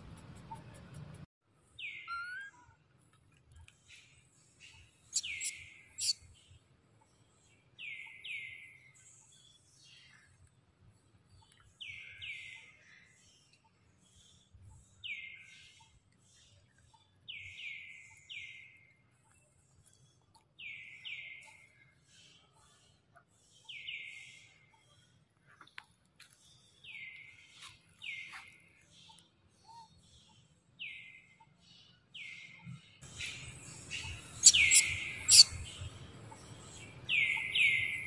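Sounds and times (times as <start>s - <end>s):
high chirps: 2.0s - 2.6s, 5.1s - 6.2s, 33.0s - 35.7s.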